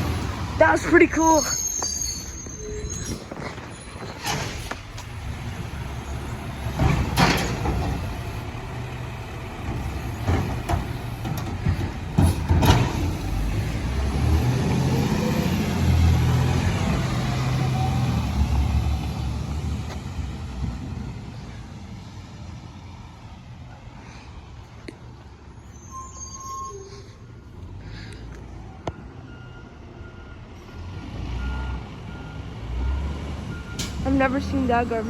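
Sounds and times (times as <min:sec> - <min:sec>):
garbage truck engine rumbling: 0:00.0 - 0:24.5.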